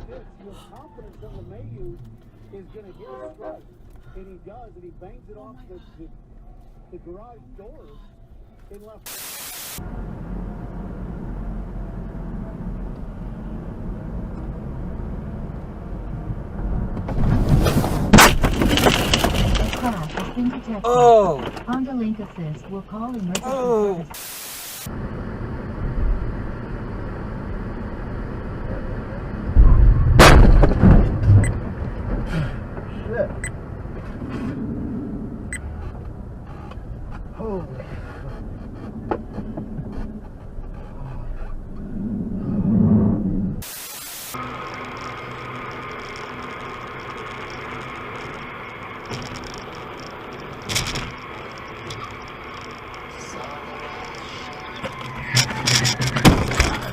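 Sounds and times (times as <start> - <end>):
road noise inside car: 0.0 - 56.9
crunching knocks: 16.2 - 23.4, 30.1 - 34.2, 54.0 - 56.9
heavy low thud: 29.6 - 32.8.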